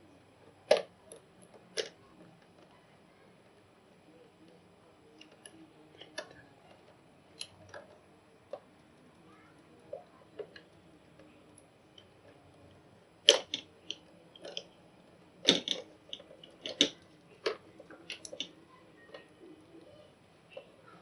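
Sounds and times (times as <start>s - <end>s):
hand tools and wire clicking: 13.2s - 14.8s, 15.4s - 20.7s.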